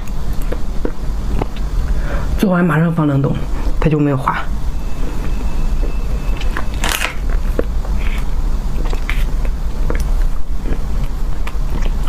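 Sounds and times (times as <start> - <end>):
steady low hum: 0.0 - 12.0
person biting and chewing: 6.4 - 12.0.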